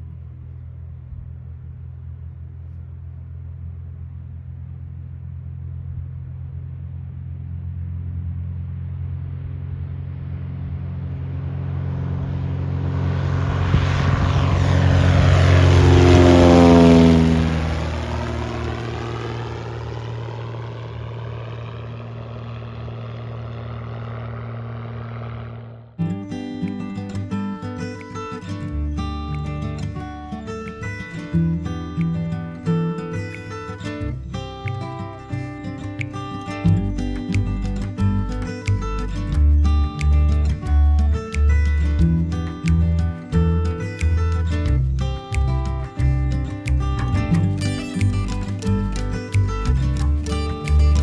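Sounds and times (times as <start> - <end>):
propeller airplane passing: 0.0 - 51.0
acoustic guitar music: 15.4 - 19.4, 26.0 - 51.0.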